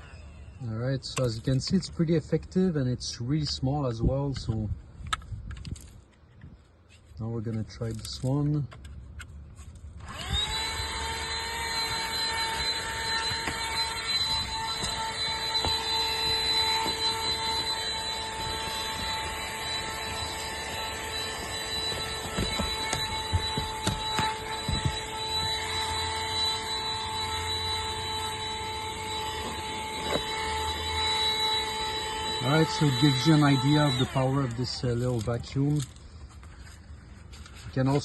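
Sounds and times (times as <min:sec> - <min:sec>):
vacuum motor whine: 0:00.0 - 0:00.7, 0:10.0 - 0:36.8.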